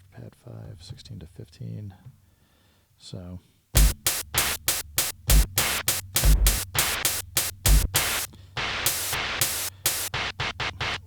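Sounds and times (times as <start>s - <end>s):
deep kick drum thumps: 3.8s - 11.0s
hissy hi-hat and snare hits: 3.8s - 11.0s.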